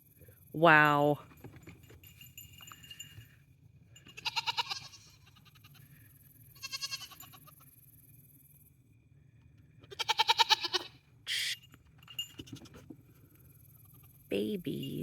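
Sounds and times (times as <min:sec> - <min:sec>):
goats bleating: 0:04.2 - 0:05.8, 0:06.6 - 0:07.3, 0:09.9 - 0:10.9.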